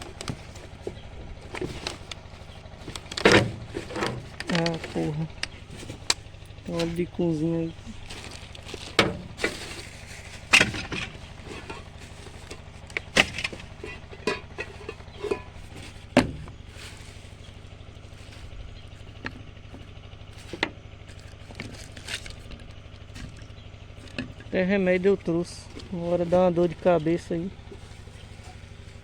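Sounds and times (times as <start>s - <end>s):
objects knocking and clattering: 0.0s - 6.2s, 8.0s - 24.6s
low mechanical hum: 0.0s - 29.0s.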